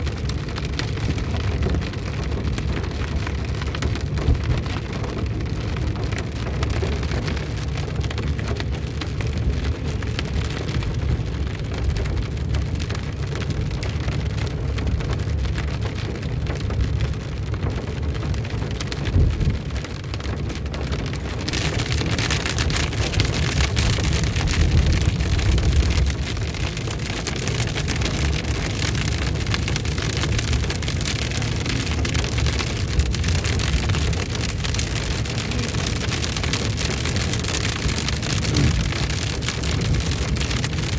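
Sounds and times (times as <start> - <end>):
heavy rain pouring: 0.0 - 40.9
low rumble: 19.0 - 40.9.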